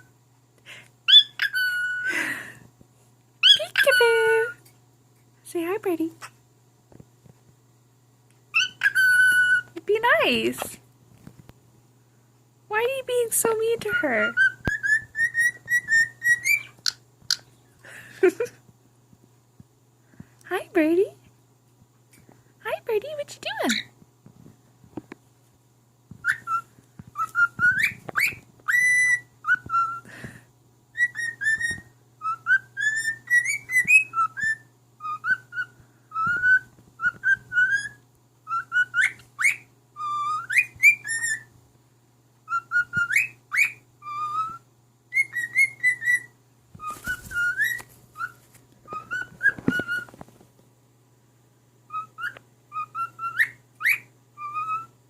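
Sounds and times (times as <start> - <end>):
faint low hum: 0.0 - 55.0
cockatiel whistling a tune: 1.1 - 2.1, 8.5 - 9.8, 13.9 - 17.0, 26.2 - 30.1, 30.9 - 41.5, 42.4 - 50.2, 51.9 - 55.0.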